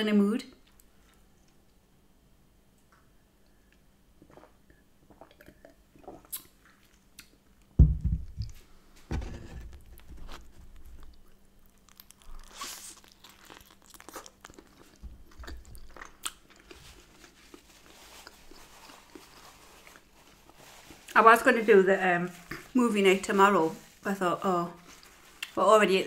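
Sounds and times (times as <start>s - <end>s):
low thumps: 7.8s - 9.9s
biting and chewing food: 9.7s - 20.1s.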